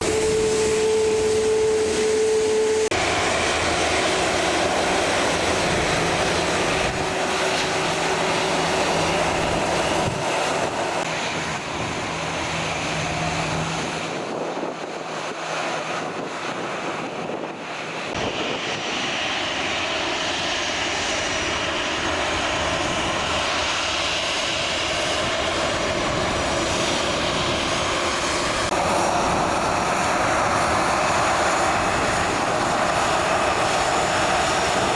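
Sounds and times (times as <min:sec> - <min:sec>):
jet engines roaring on takeoff: 0:00.0 - 0:34.9.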